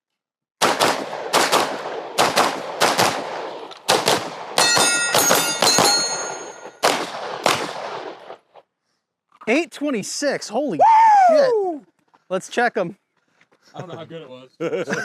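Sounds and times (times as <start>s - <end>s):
rapid gunfire: 0.6s - 8.4s
steel targets ringing: 4.6s - 6.8s.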